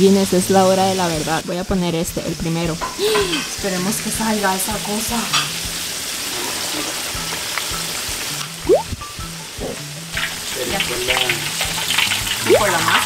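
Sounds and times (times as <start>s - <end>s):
sausage frying in hot oil: 0.0s - 13.0s
background music: 3.3s - 13.0s.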